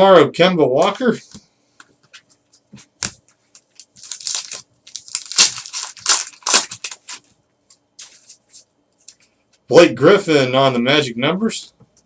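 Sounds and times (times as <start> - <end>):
foil wrapper crinkling and tearing: 3.7 - 7.3.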